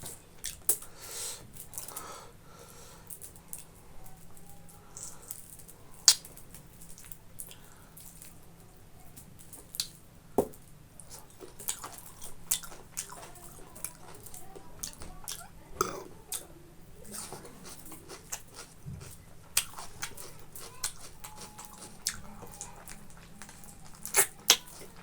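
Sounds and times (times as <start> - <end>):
wet chewing sounds: 0.0 - 0.9, 11.0 - 25.0
sharp mouth clicks: 24.1 - 24.9.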